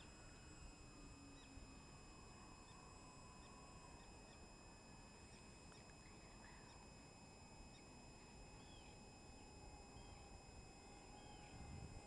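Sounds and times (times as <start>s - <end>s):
faint bird chirps: 5.3s - 7.1s, 7.7s - 11.6s.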